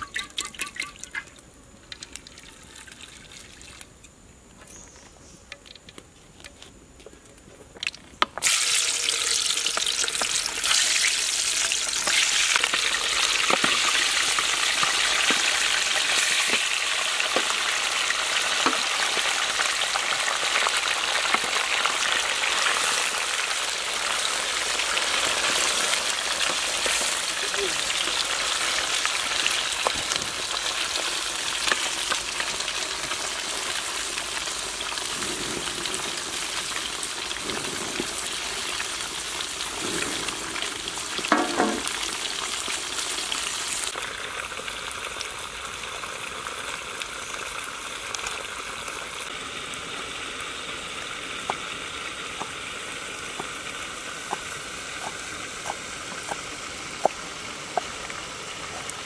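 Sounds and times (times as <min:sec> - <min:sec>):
meat sizzling in a pan: 0:08.4 - 0:59.0.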